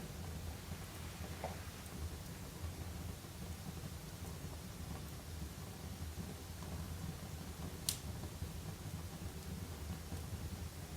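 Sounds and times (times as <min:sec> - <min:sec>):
faint fire crackle: 0:00.0 - 0:10.9
wood fire rumbling: 0:00.0 - 0:10.9.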